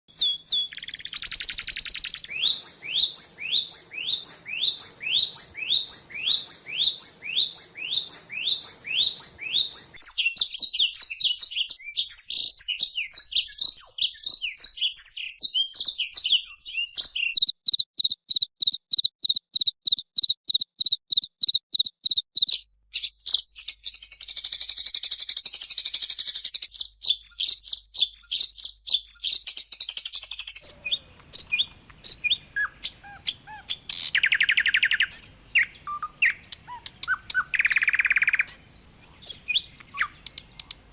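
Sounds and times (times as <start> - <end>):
bird singing: 0.1 - 40.9.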